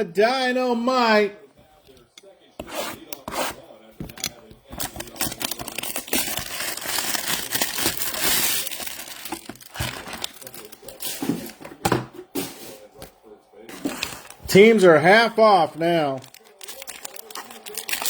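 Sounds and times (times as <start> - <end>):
foil wrappers crinkling and tearing: 4.6 - 11.6, 13.7 - 14.8, 16.0 - 18.0.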